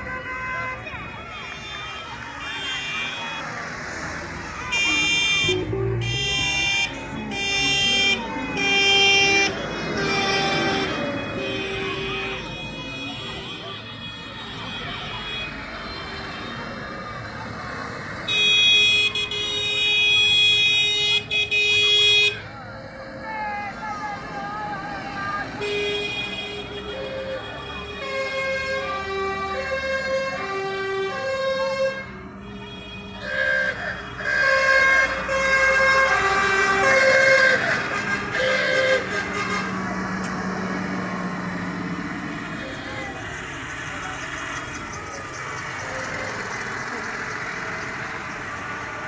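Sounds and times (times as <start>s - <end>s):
passing vehicles: 0.0s - 49.0s
vehicle horn blaring: 4.7s - 16.6s, 18.3s - 22.4s, 25.6s - 41.6s
vehicle horn blasts: 25.6s - 40.3s
engine running: 36.0s - 49.0s.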